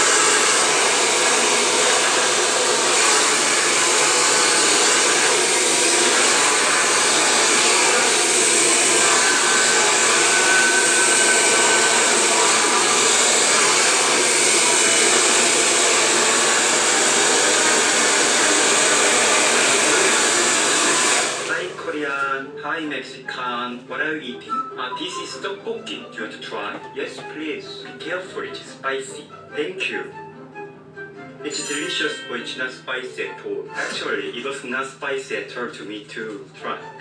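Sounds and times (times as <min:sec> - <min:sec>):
hair dryer running: 0:00.0 - 0:22.1.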